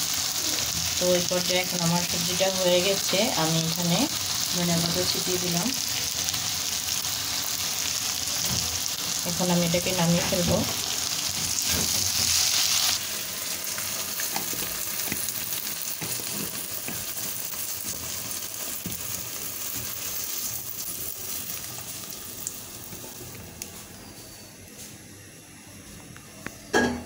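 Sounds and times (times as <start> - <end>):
vegetables sizzling in oil: 0.0 - 25.6.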